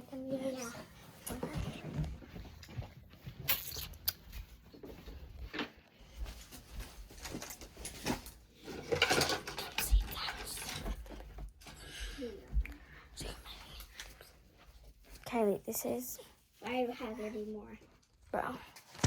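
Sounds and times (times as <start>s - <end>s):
rummaging through small objects: 6.4s - 11.8s.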